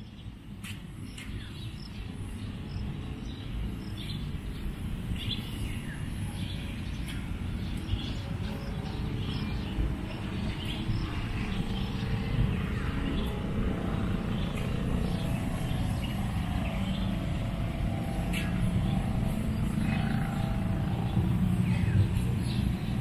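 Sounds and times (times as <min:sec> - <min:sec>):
low rumble: 0:08.3 - 0:23.0.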